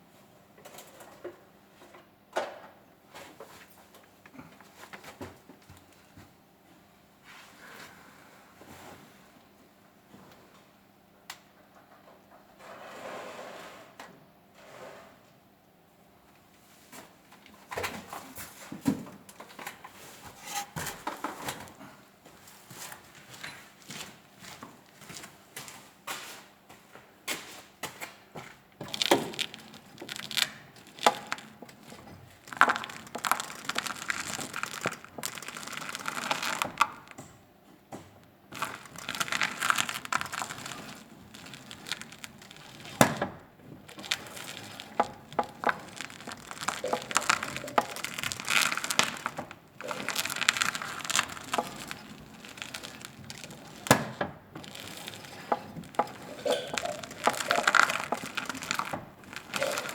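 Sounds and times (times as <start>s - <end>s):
crackling rubbing noise: 28.8s - 37.2s, 38.5s - 59.9s.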